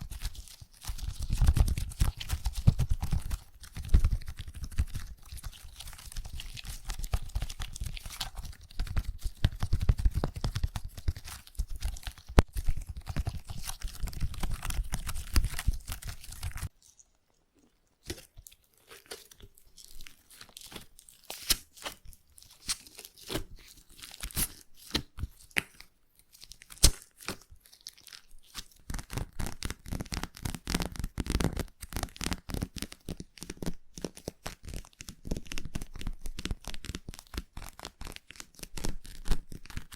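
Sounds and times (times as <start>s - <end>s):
slime squishing and crackling: 0.0s - 39.9s.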